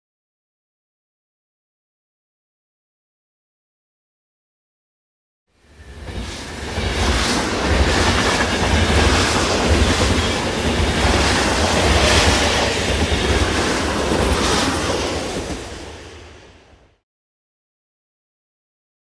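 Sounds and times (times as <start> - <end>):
train clattering along rails: 5.7 - 16.8.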